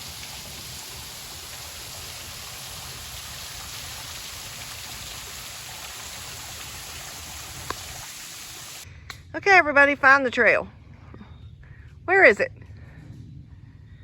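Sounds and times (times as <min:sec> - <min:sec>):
hiss of running water: 0:00.0 - 0:08.9
low rumble: 0:10.5 - 0:14.0.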